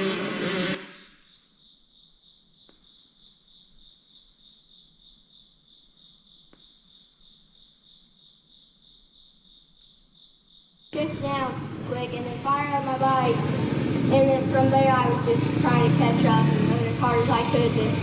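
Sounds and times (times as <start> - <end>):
dirt bike engine: 0.0 - 1.1, 11.0 - 18.0
crickets chirping: 0.8 - 11.6.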